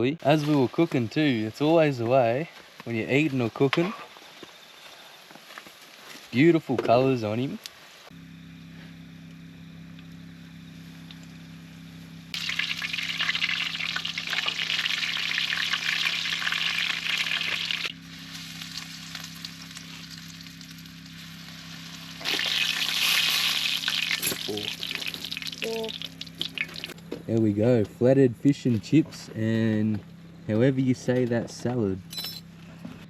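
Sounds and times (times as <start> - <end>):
steady low hum: 6.2 - 33.0
food frying in hot oil: 12.4 - 27.0.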